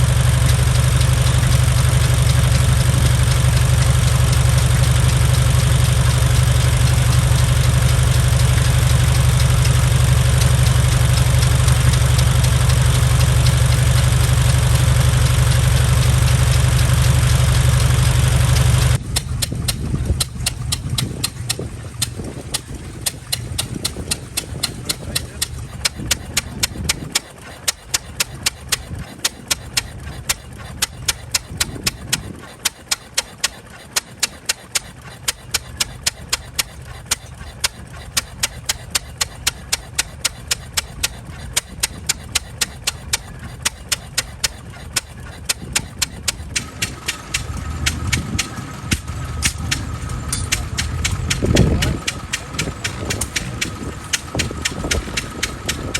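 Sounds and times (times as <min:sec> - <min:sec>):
engine ticking over low rumble: 0:00.0 - 0:55.9
voices talking: 0:22.4 - 0:26.2, 0:46.6 - 0:55.4
thin steady whine: 0:45.1 - 0:55.9.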